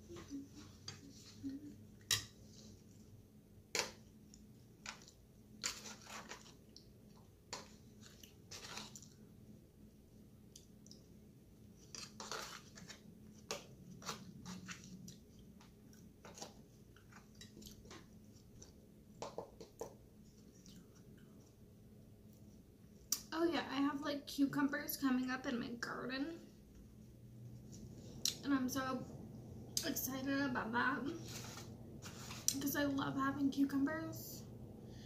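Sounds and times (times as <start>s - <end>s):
chewing salad with crunches: 19.7s - 21.6s.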